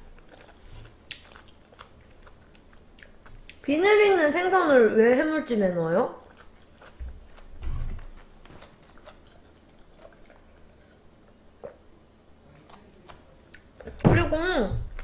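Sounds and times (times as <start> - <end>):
person chewing food: 0.0 - 3.7, 6.2 - 14.0.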